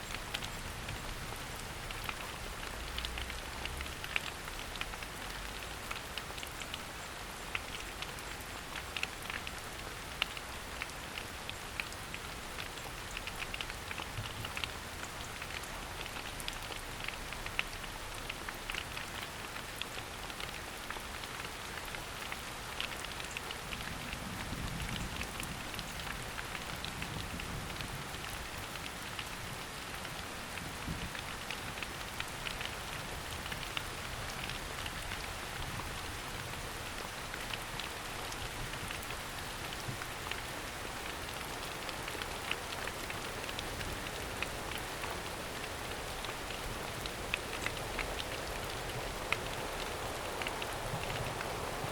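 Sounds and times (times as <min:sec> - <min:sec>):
raindrops ticking: 0:00.0 - 0:51.9
rain hissing: 0:40.6 - 0:51.9.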